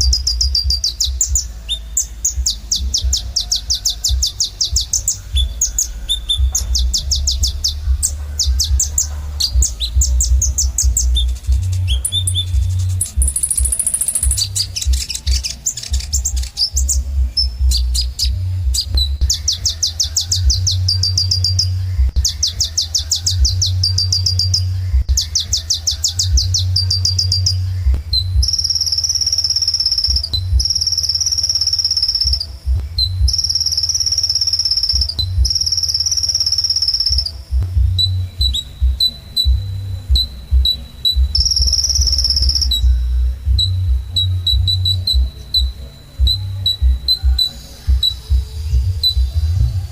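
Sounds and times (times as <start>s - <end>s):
thin high whistled notes: 0.0s - 37.4s
bird singing high trills: 0.0s - 49.6s
steady low hum: 0.0s - 49.9s.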